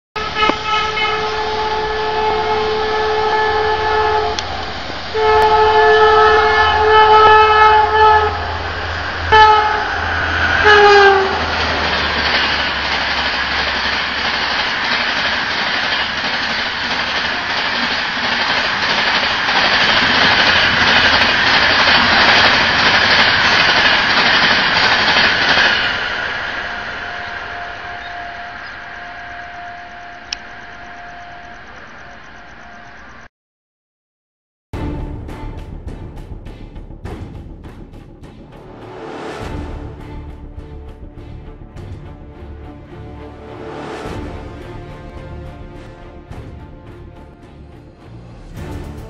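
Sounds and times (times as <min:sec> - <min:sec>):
rail clicks: 0:00.2 - 0:02.0, 0:03.6 - 0:30.8
train horn blasts: 0:00.2 - 0:12.0, 0:25.9 - 0:31.7
train rushing past: 0:00.2 - 0:33.0, 0:34.8 - 0:49.0.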